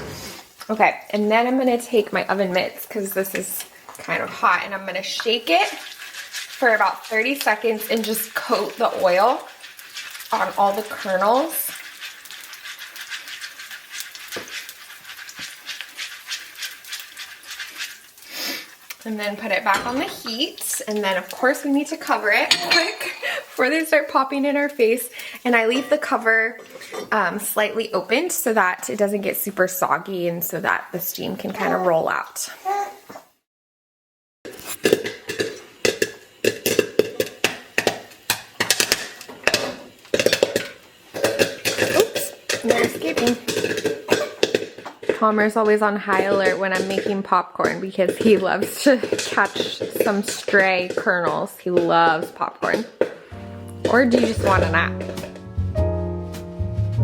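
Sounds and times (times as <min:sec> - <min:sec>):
popcorn kernels swishing in pot: 0:00.0 - 0:32.5, 0:34.5 - 0:57.0
pot knocking: 0:34.9 - 0:45.2, 0:46.1 - 0:57.0.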